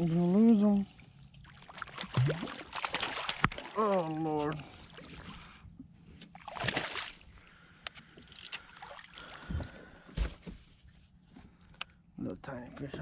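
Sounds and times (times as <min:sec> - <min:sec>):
water splashing and sloshing: 0:00.0 - 0:05.6, 0:06.2 - 0:07.6, 0:08.3 - 0:09.9.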